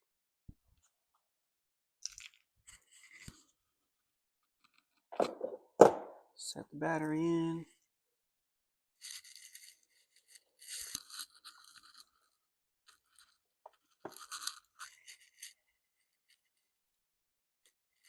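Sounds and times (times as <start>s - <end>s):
scraping and rubbing: 12.9s - 16.4s.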